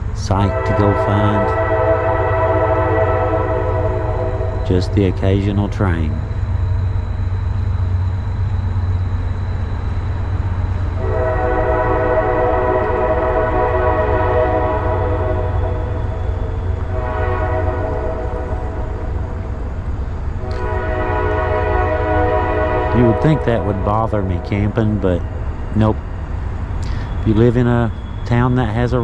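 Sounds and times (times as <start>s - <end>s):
train rumbling past: 0.0s - 29.0s
train horn blasts: 0.2s - 6.4s, 11.0s - 19.7s, 20.4s - 25.9s.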